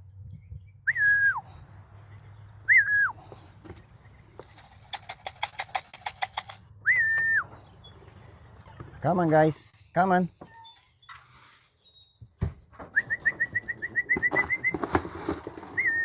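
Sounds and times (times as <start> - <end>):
person whistling a call: 0.9 - 1.4, 2.7 - 3.2, 6.8 - 7.5, 13.0 - 14.8, 15.8 - 16.0
quick run of clicks: 4.4 - 7.3.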